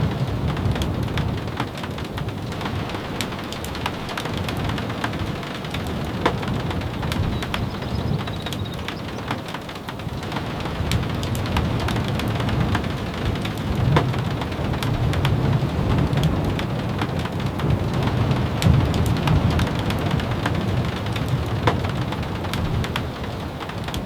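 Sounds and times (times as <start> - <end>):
raindrops tapping: 0.0 - 24.0
steady rain: 0.0 - 24.0.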